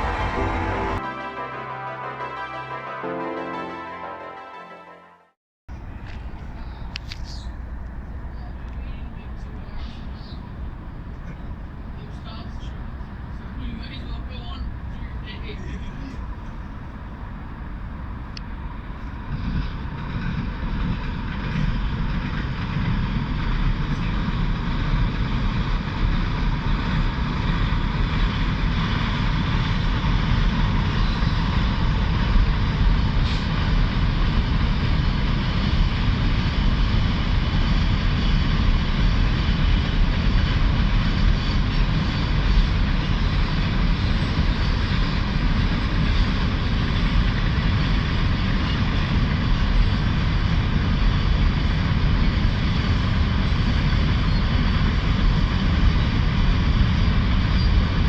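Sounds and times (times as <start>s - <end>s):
train wheels rumbling on rail: 5.7s - 58.0s.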